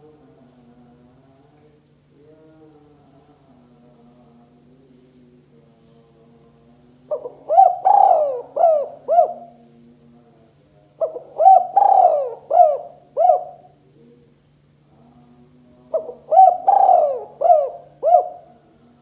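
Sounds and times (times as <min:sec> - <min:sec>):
dove cooing: 0:07.1 - 0:09.6, 0:11.0 - 0:13.9, 0:15.8 - 0:18.6.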